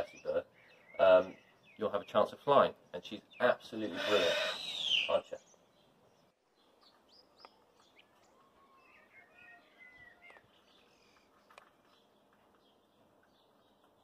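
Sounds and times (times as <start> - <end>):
birds chirping and whistling: 0.0 - 14.0.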